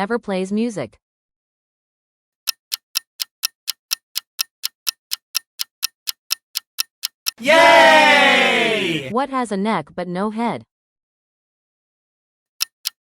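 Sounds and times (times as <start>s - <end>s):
clock ticking: 2.4s - 7.7s, 12.6s - 13.0s
voice cheering yay: 7.4s - 9.1s.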